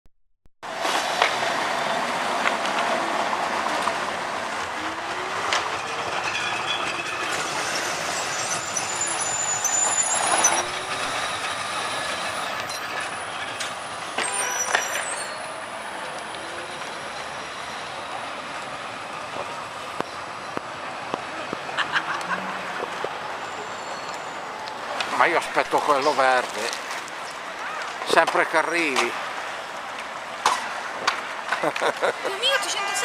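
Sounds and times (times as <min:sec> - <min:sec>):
tram rumbling over rails: 0:00.7 - 0:29.0
tram wheels clanking and squealing: 0:04.6 - 0:18.6, 0:22.0 - 0:26.8.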